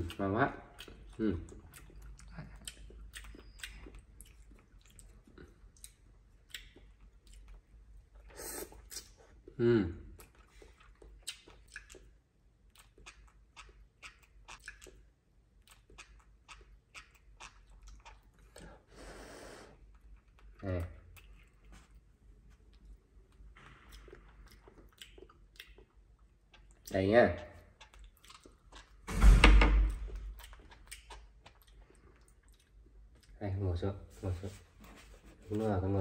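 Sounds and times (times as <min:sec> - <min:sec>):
chewing and lip-smacking: 0:00.0 - 0:18.9, 0:19.8 - 0:29.0, 0:29.9 - 0:33.5.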